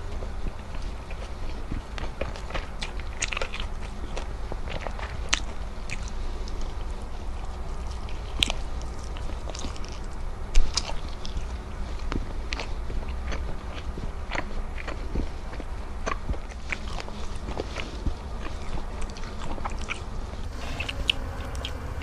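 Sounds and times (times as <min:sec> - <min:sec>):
person chewing food: 0:00.1 - 0:22.0
low hum: 0:16.7 - 0:22.0.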